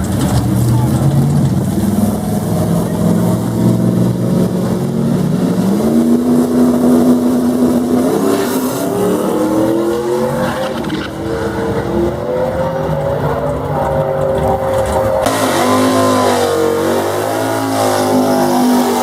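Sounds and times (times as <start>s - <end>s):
race car engine accelerating: 0.0s - 19.0s.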